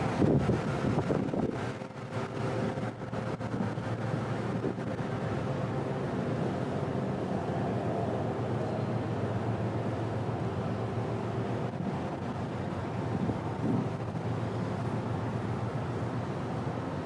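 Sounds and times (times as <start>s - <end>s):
wind buffeting microphone: 0.0s - 1.8s, 11.7s - 14.4s.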